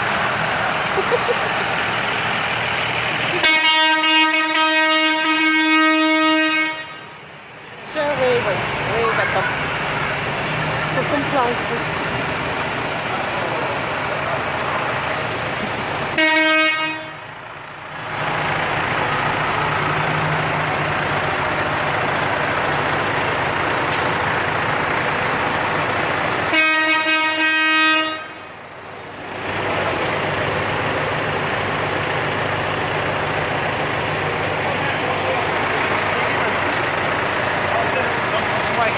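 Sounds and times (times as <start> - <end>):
tractor engines running: 0.0 - 38.9
vehicle horn blasts: 3.4 - 7.2, 16.1 - 17.3, 26.5 - 28.5.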